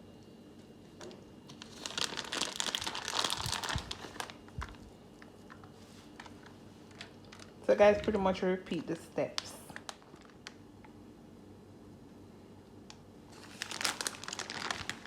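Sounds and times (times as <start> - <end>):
plastic packet crinkling: 1.5 - 10.7, 13.3 - 15.0.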